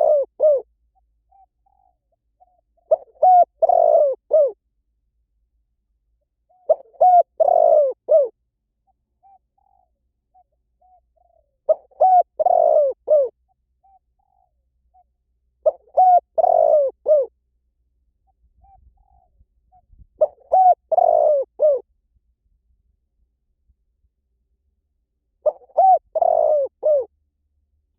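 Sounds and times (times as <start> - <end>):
dove cooing: 0.0 - 0.7, 1.3 - 4.6, 6.5 - 8.4, 9.2 - 17.3, 18.6 - 21.9, 25.4 - 27.1.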